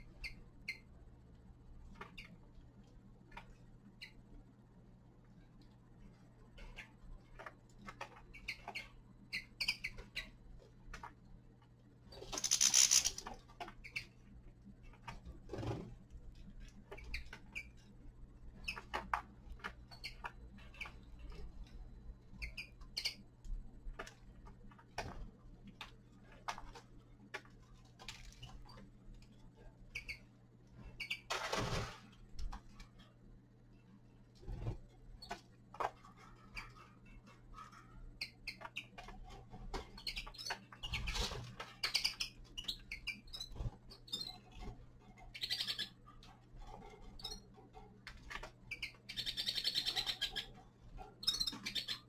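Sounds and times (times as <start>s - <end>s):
soft bird chirps: 8.2s - 10.4s, 22.2s - 23.3s, 29.9s - 31.3s, 39.9s - 44.5s, 45.2s - 46.0s, 48.7s - 50.6s, 51.2s - 52.0s
finches cracking seeds: 12.3s - 13.4s.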